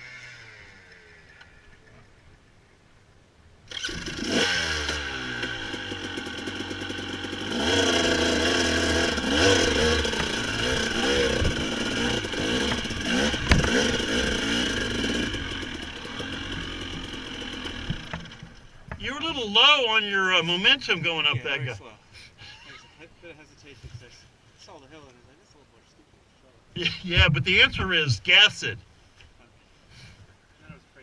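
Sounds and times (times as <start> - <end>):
dirt bike engine revving: 0.0 - 1.6, 3.7 - 19.5.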